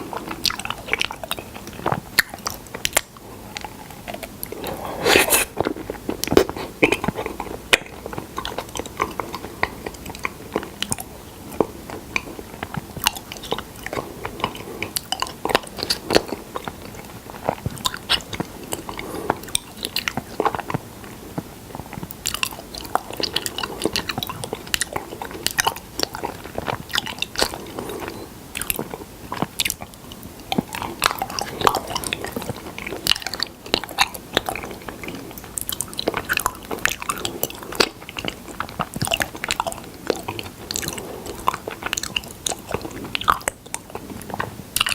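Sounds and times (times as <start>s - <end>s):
chewing sticky honey: 0.0s - 44.9s.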